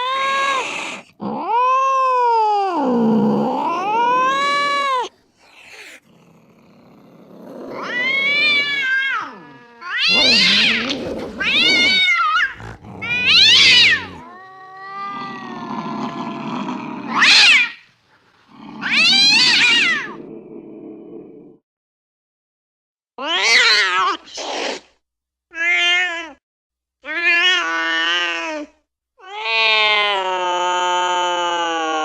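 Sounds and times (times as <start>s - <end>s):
cats yowling: 0.0s - 6.0s, 7.5s - 17.8s, 18.6s - 20.2s, 29.2s - 32.0s.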